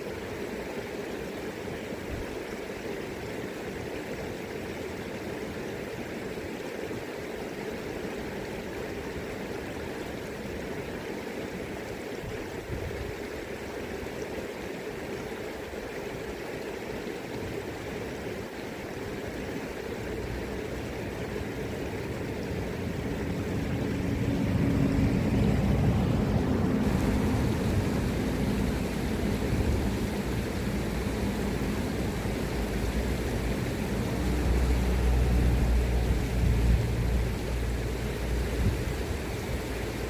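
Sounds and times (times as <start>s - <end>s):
river current rushing: 0.0s - 40.0s
wind rumble on microphone: 12.2s - 13.2s, 22.3s - 40.0s.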